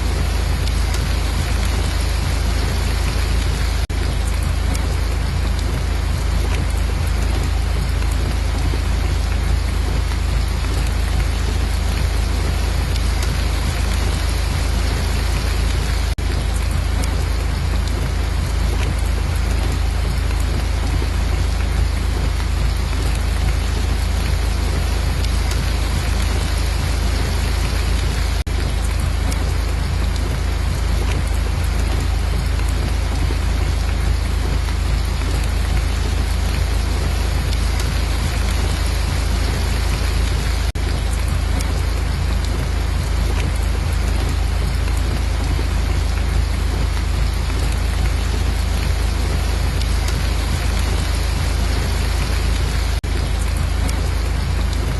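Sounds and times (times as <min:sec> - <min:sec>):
heavy rain: 0:00.0 - 0:54.9.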